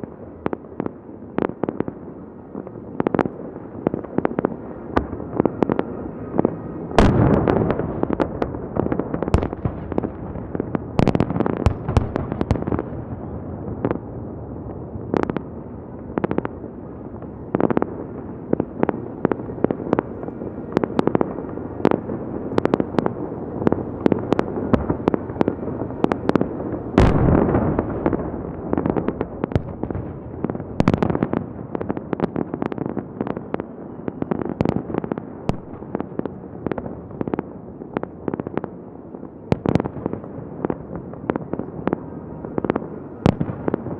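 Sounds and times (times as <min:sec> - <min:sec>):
fireworks bangs and cracks: 0:00.0 - 0:43.9.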